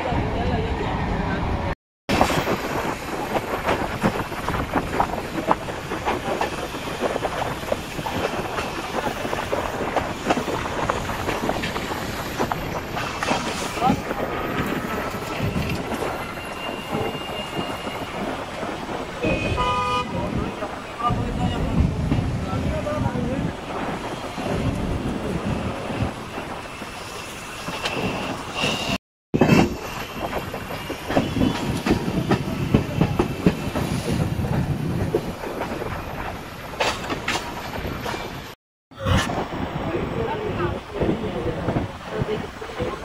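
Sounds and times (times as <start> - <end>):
train rumble and clatter: 0.0 - 43.0
wind rush: 0.0 - 43.0
train horn: 19.2 - 20.2.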